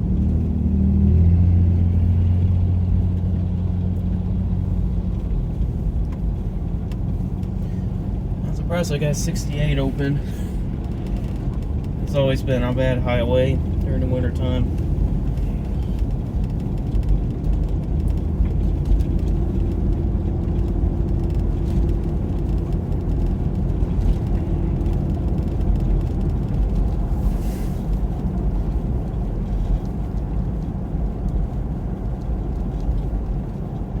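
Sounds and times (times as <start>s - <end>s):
car engine and tyre noise: 0.0s - 34.0s.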